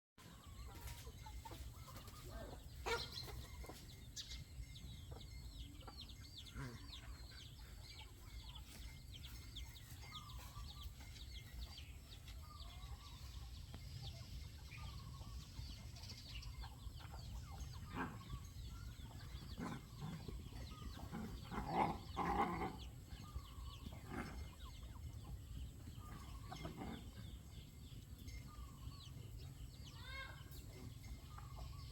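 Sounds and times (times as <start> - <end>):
animal calls: 16.4 - 27.6.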